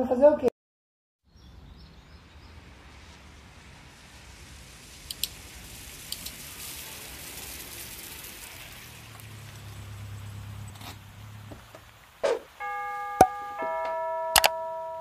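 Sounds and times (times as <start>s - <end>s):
outdoor background hiss: 1.3s - 15.0s
sharp clicks: 5.1s - 5.4s.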